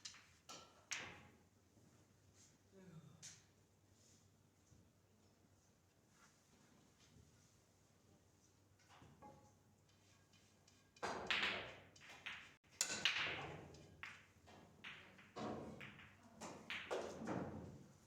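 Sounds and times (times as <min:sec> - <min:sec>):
pool balls clacking: 0:09.9 - 0:17.7.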